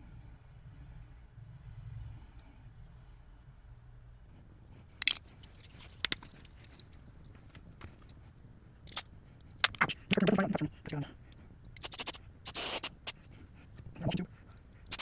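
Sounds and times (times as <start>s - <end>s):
metallic clicks of tools handled: 5.0s - 6.9s, 8.9s - 9.9s.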